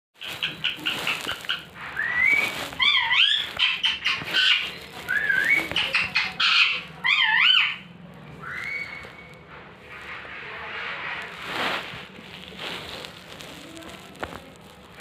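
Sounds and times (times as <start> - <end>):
parrot whistling and squawking: 0.2 - 9.4.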